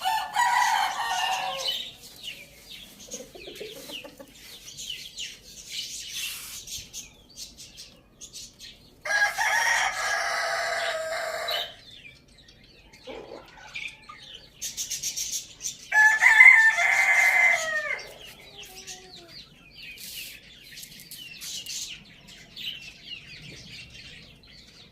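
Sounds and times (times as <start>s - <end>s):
rooster crowing: 0.0s - 1.9s, 9.0s - 11.8s, 15.9s - 18.8s
small birds chirping: 0.0s - 24.9s.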